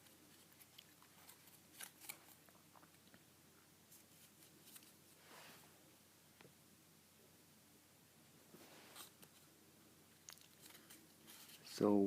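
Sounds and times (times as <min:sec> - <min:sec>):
paper crinkling and creasing: 0:00.0 - 0:02.6.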